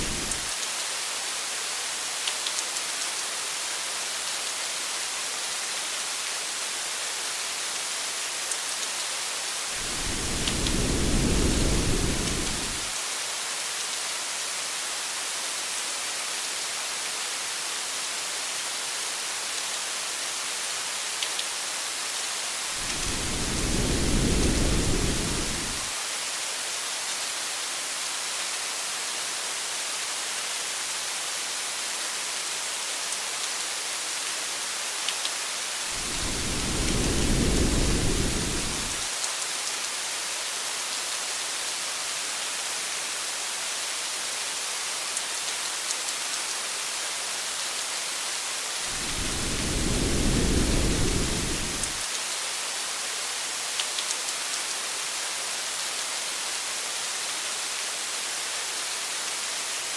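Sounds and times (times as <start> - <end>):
rain on a car: 0.0 - 0.7, 9.8 - 13.0, 22.8 - 25.9, 35.9 - 39.1, 48.9 - 52.0
low rolling thunder: 9.8 - 12.9, 22.8 - 25.9, 35.9 - 39.1, 48.9 - 52.0.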